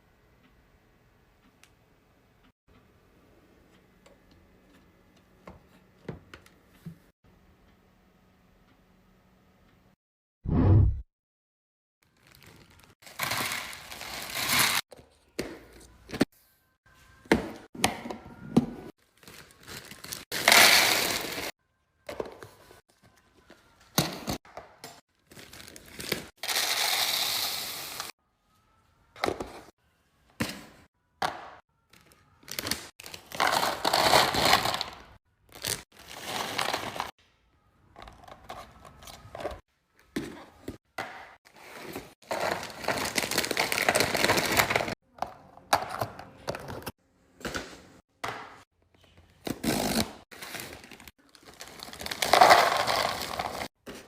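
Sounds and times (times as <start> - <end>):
packaging crinkling: 50.4 - 53.7.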